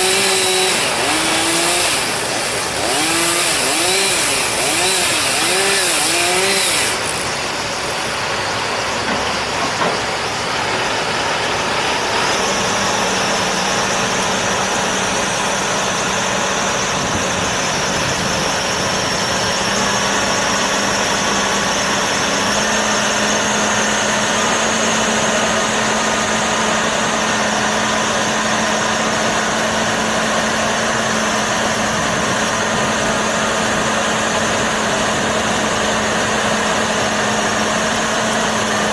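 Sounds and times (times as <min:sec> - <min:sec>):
chainsaw revving: 0:00.0 - 0:08.2.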